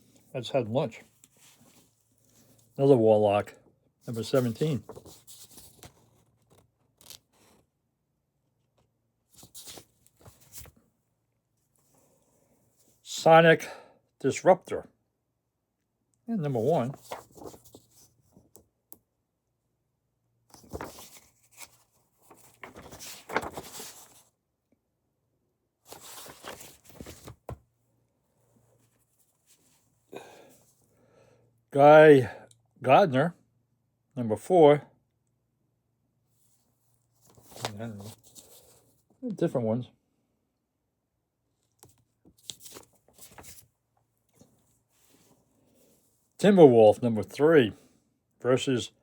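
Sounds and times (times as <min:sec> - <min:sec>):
comic books rustling: 0:00.9 - 0:03.0, 0:04.1 - 0:07.6, 0:09.3 - 0:10.8, 0:16.4 - 0:18.7, 0:20.5 - 0:24.4, 0:25.8 - 0:27.8, 0:36.4 - 0:39.2, 0:41.7 - 0:46.3.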